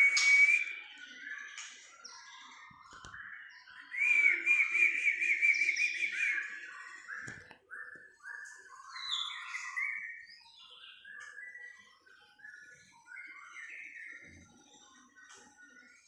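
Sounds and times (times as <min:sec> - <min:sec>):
bird whistling song: 0:00.0 - 0:16.0.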